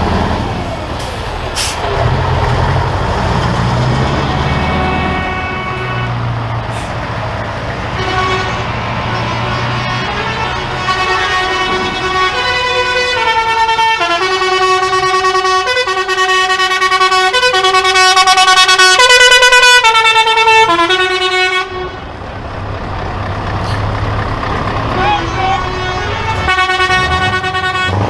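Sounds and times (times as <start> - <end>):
truck engines rumbling: 0.0 - 28.0
musical air horn playing tune: 4.4 - 6.9, 7.9 - 22.0, 25.0 - 28.0.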